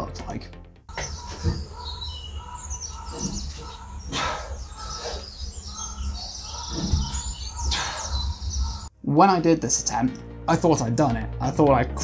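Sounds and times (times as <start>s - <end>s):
small birds chirping: 0.9s - 9.0s.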